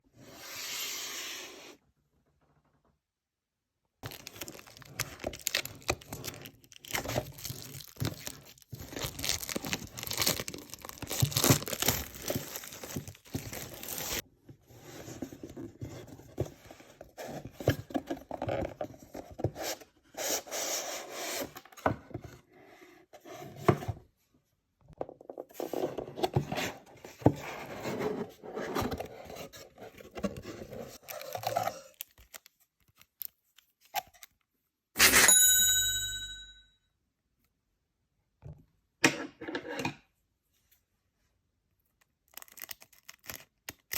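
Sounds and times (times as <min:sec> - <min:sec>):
packaging tearing and crinkling: 0:04.0 - 0:14.2, 0:42.3 - 0:43.9.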